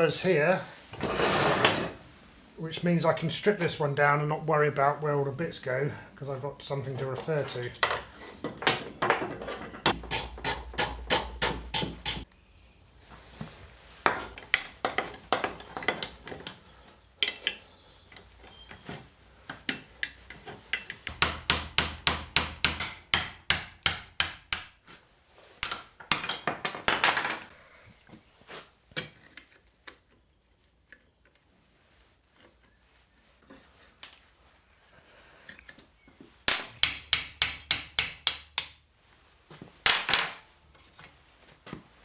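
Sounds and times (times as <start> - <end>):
hammer tapping on metal: 21.1 - 24.8, 36.5 - 38.8.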